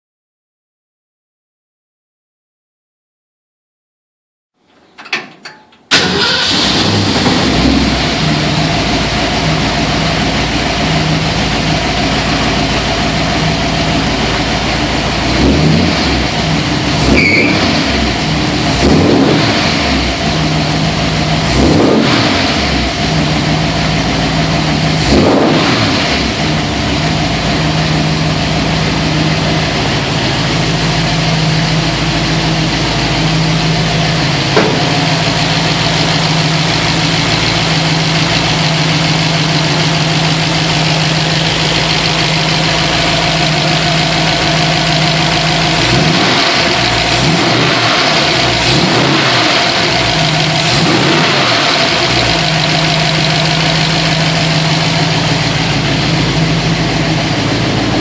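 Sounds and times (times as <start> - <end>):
engine revving from throttle blips: 5.9 - 14.0, 15.0 - 31.7, 33.4 - 58.0
car engine idling: 5.9 - 58.0.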